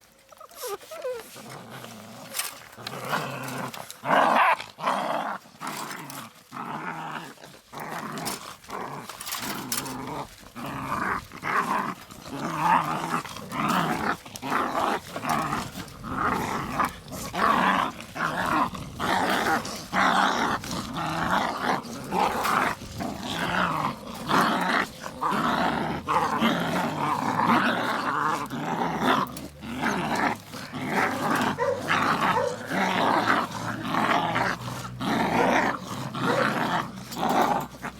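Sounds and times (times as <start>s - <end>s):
puppies growling: 0.0s - 37.9s.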